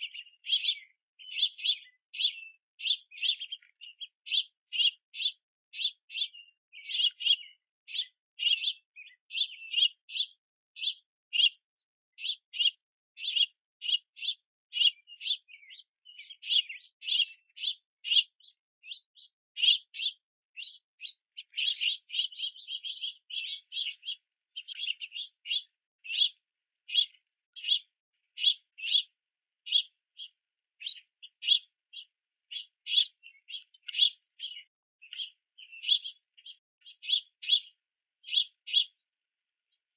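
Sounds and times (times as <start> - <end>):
young finches begging chirps: 0.0 - 39.0.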